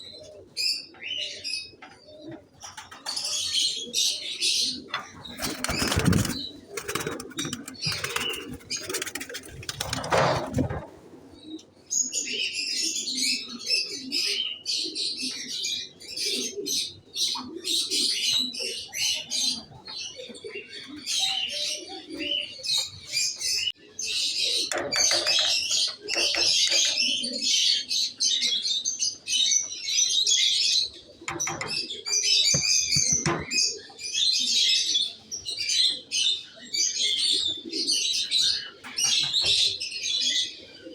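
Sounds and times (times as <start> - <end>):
small birds chirping: 0.0 - 10.1, 14.5 - 40.9
pigeons cooing: 0.0 - 40.9
wings flapping: 5.2 - 10.8.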